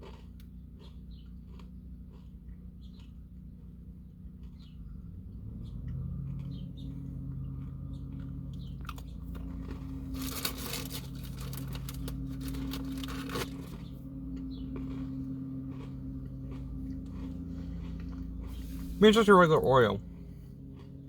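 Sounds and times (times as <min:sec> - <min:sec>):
crunching and chewing cookie: 0:00.0 - 0:21.0
steady low hum: 0:00.0 - 0:21.0
popping candy crackling: 0:09.4 - 0:13.8.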